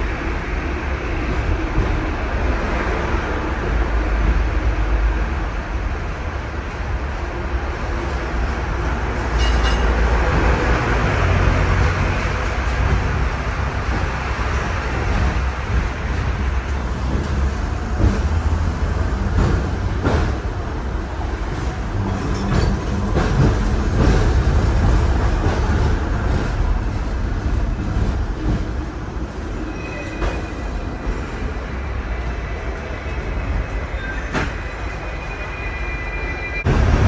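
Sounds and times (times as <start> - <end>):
bus ride rumbling: 0.0 - 35.3, 36.6 - 37.0.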